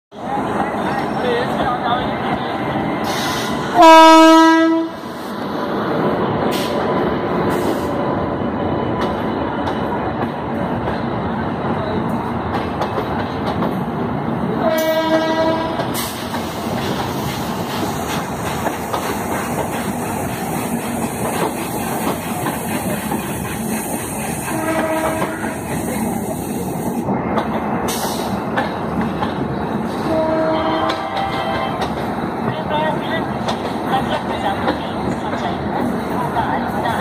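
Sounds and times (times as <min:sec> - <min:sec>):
train wheels rumbling on rail: 0:00.1 - 0:37.0
locomotive horn: 0:03.8 - 0:05.0, 0:14.6 - 0:15.9, 0:24.5 - 0:25.6, 0:30.0 - 0:31.8.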